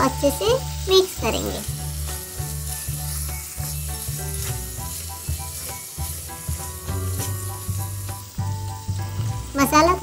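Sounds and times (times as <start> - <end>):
food sizzling in a pan: 0.0 - 10.0
music with bass beat: 1.7 - 9.6.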